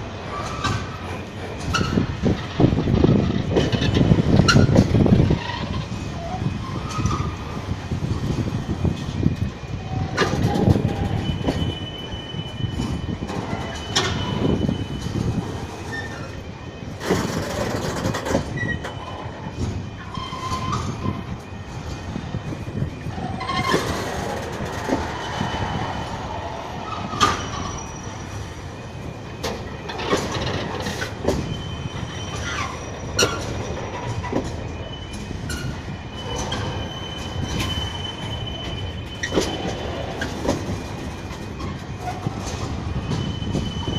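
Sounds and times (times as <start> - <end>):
train wheels rumbling on rail: 0.0 - 43.9
high wheel squeal: 0.2 - 2.3, 3.7 - 7.6, 9.7 - 43.9.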